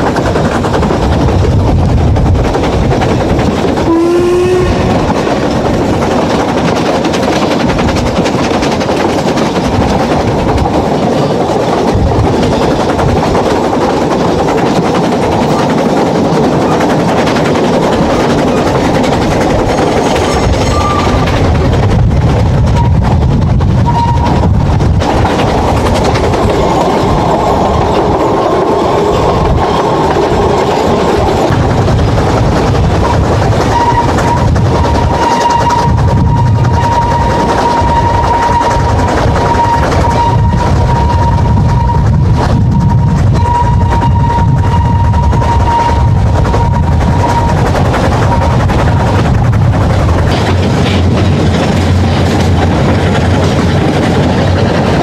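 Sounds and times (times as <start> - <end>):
train wheels rattling on track: 0.0 - 55.0
high wheel squeals: 19.9 - 21.4, 33.6 - 47.6.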